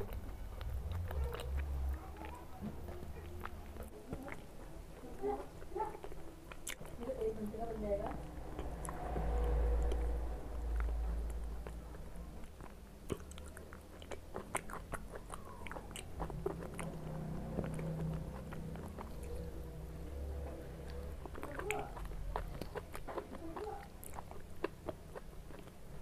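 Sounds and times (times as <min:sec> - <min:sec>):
mouth clicks and smacks: 0:00.0 - 0:04.8, 0:05.4 - 0:07.0, 0:10.8 - 0:19.8
person chewing food: 0:00.0 - 0:07.1, 0:08.1 - 0:26.0.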